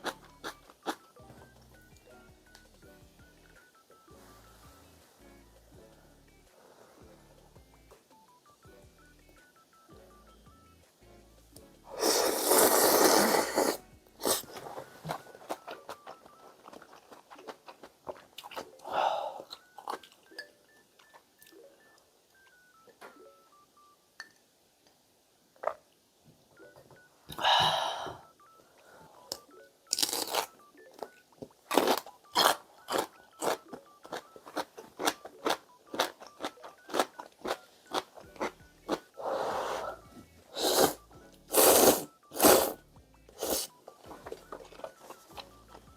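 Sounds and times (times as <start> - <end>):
slurping noodles: 11.9 - 14.8, 39.2 - 42.8, 43.4 - 43.7
chewing noodles: 12.0 - 20.2, 29.3 - 31.1, 31.7 - 39.1.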